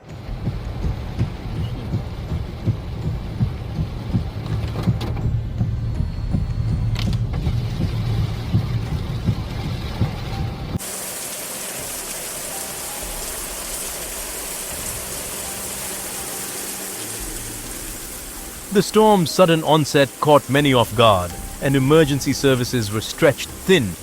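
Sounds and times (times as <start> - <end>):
low rumbling with thumps: 0.1 - 10.8
steady hiss of water: 10.8 - 24.0.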